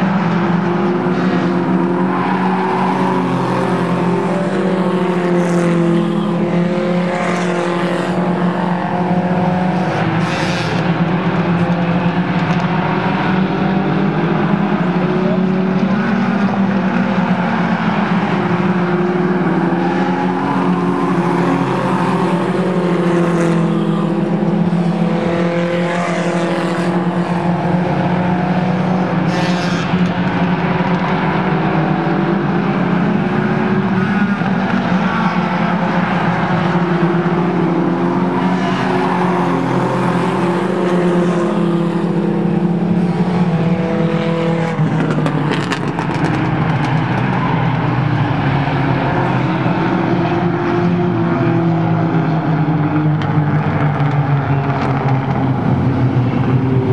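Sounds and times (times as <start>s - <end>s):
race car engines droning: 0.0s - 56.9s.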